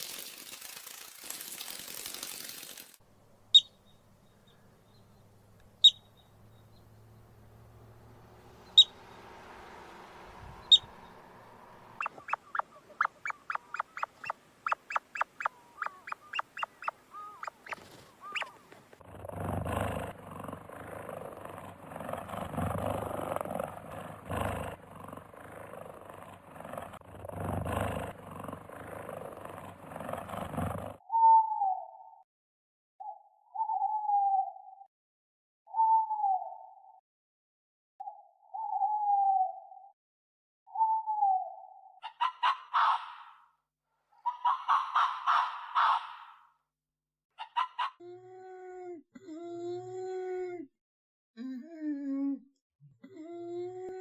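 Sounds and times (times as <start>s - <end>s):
faint high chirps: 3.5s - 18.6s
rough noisy animal calling: 3.5s - 30.8s
short sharp animal calls: 8.5s - 18.7s.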